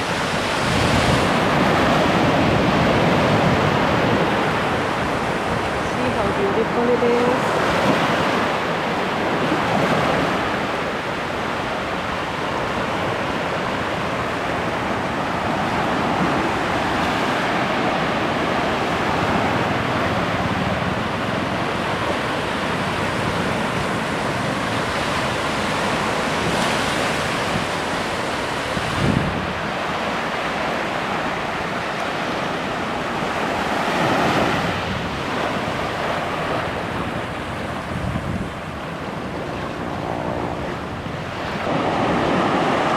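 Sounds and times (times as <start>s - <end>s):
ocean surf breaking: 0.0s - 42.9s
wind buffeting microphone: 0.0s - 42.9s.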